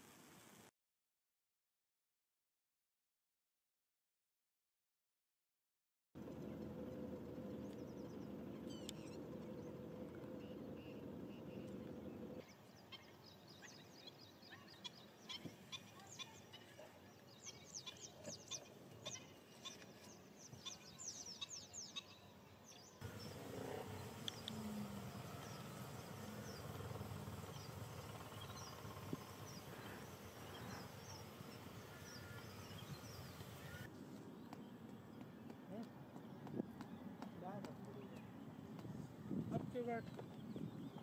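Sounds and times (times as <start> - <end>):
faint bird chirps: 7.6 - 9.7
even hiss: 23.0 - 33.9.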